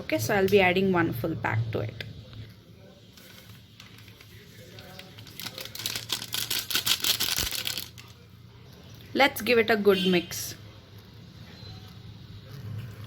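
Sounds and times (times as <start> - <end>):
packet crinkling and rustling: 3.0 - 8.2.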